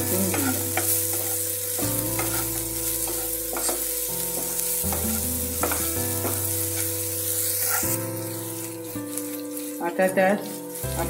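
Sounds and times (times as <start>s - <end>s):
masala sizzling in oil: 0.0s - 11.0s
wooden spatula scraping pan: 0.0s - 11.0s.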